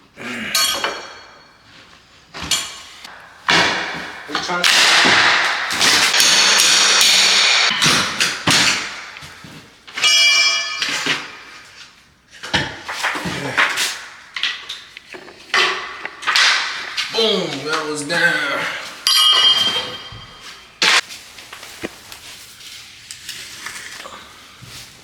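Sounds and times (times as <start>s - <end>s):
drywall knocked and torn out: 3.1s - 9.8s, 12.5s - 14.6s.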